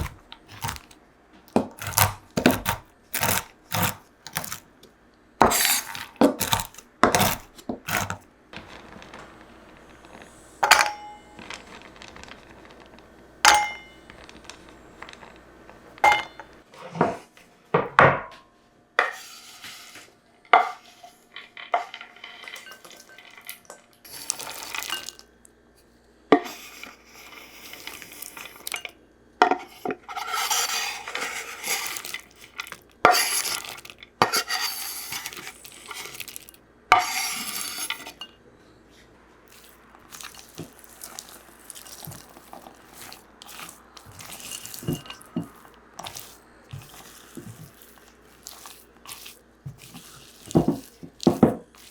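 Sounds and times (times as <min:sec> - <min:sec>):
utensils and dishes clinking: 0:10.6 - 0:12.1, 0:13.4 - 0:15.2, 0:16.0 - 0:17.2, 0:20.4 - 0:25.3, 0:26.4 - 0:38.4, 0:39.5 - 0:51.9
clattering and scraping: 0:19.0 - 0:25.2, 0:41.8 - 0:47.8.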